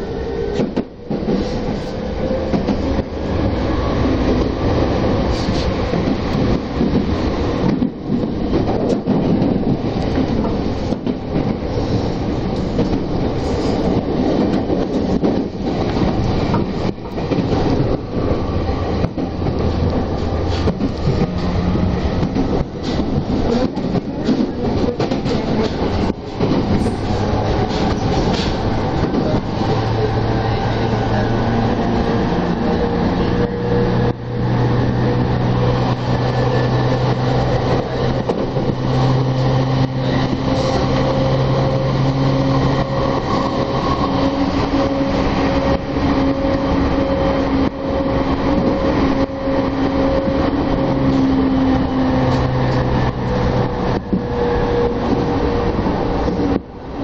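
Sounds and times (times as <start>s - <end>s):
train rumble: 0.0s - 57.0s.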